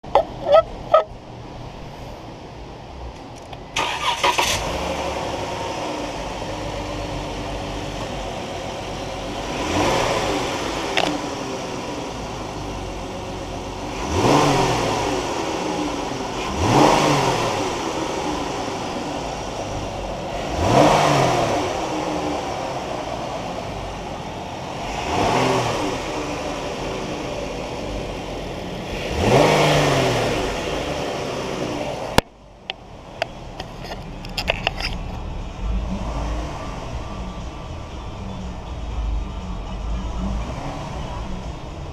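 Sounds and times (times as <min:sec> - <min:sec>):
car engine starting and revving: 0:03.0 - 0:32.2, 0:33.0 - 0:41.9.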